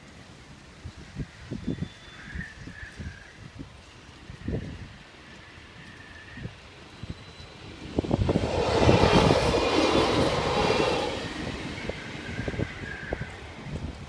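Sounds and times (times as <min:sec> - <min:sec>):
diesel train passing: 0:05.4 - 0:14.0.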